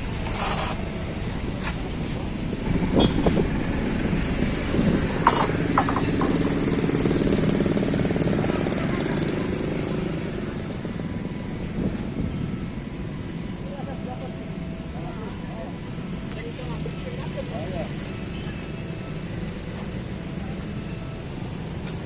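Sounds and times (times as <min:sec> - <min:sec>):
construction machinery engine running: 0:00.0 - 0:22.0.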